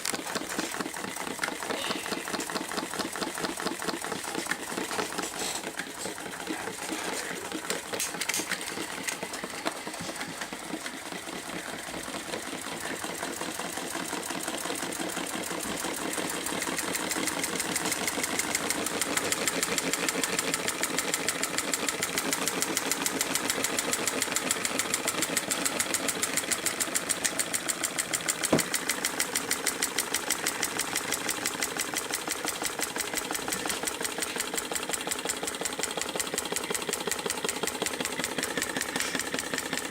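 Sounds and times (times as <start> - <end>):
hot-air engine clattering: 0.0 - 39.9
sharp mechanical knock: 28.4 - 29.0.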